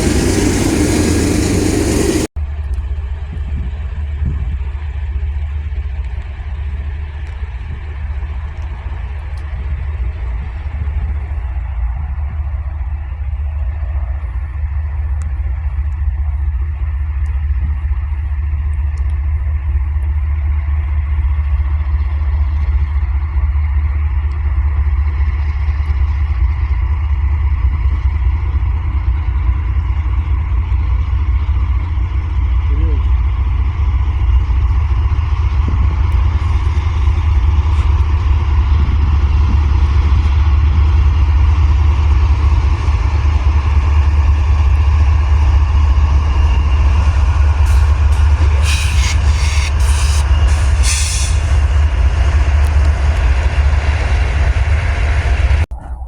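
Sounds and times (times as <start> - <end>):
faint whining tones: 0.0 - 2.3
low engine rumble: 0.0 - 7.4, 12.4 - 56.0.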